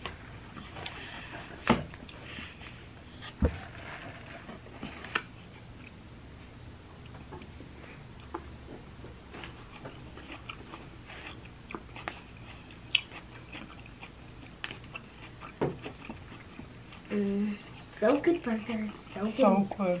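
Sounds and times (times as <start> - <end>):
chewing and crunching salad: 0.0 - 2.8, 7.0 - 19.4.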